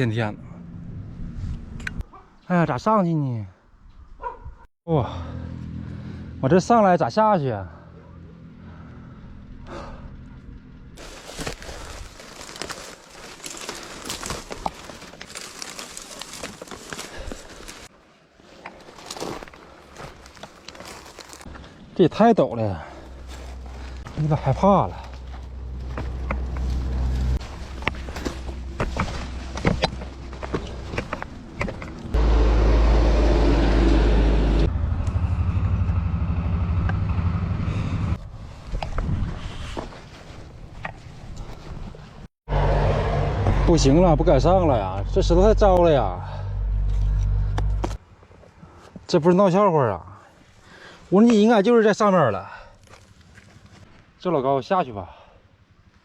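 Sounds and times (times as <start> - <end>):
footsteps crunching on loose rock: 11.0 - 17.9, 18.6 - 21.7, 23.1 - 32.2.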